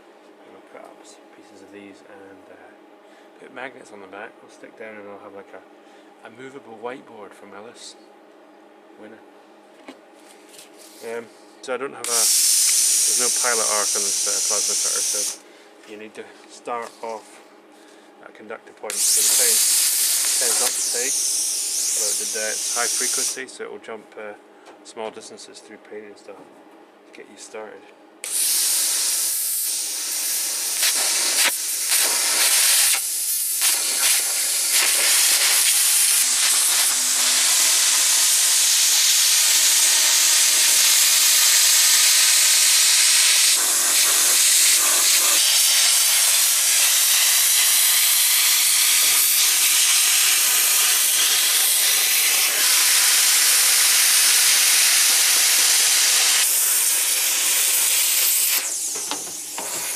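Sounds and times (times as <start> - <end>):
plasma cutter hissing: 12.0 - 15.4, 18.9 - 23.4, 28.2 - 59.9.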